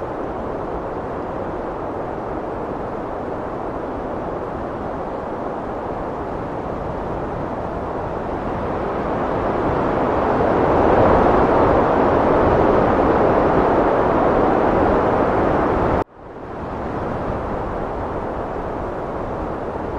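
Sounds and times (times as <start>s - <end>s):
heavy wind blowing: 0.0s - 19.9s.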